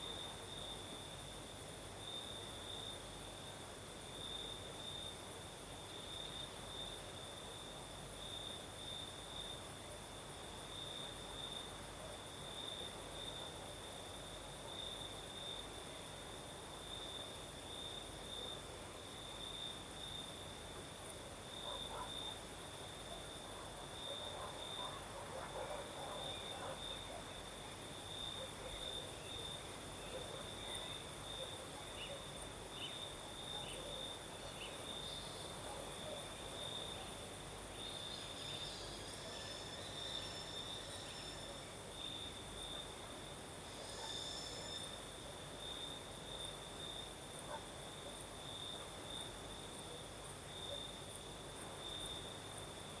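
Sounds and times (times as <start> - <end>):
faint high insect hiss: 0.0 - 53.0
crickets chirring: 14.0 - 47.6, 50.5 - 53.0.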